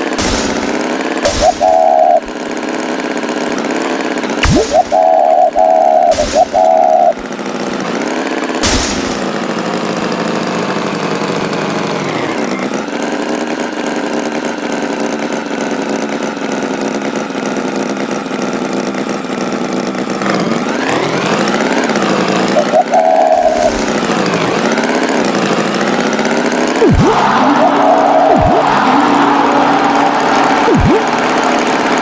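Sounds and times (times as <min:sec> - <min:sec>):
sharp knock: 0:00.0 - 0:02.4, 0:04.4 - 0:07.2, 0:08.6 - 0:09.5
tractor engine running: 0:00.0 - 0:32.0.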